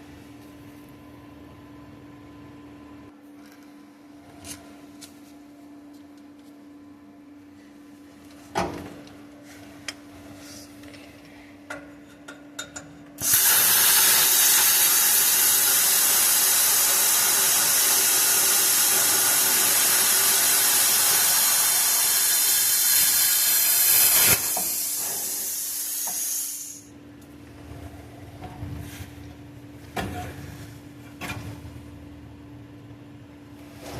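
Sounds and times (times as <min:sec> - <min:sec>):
air hiss: 0:13.2 - 0:26.9
plasma cutter torch hissing: 0:13.2 - 0:26.9.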